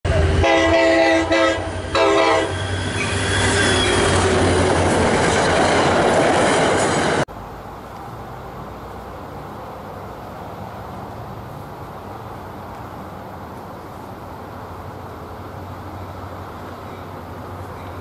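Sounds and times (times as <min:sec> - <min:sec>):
train passing at speed: 0:00.0 - 0:18.0
wheels rushing on rail: 0:00.0 - 0:18.0
train horn blasts: 0:00.1 - 0:04.0.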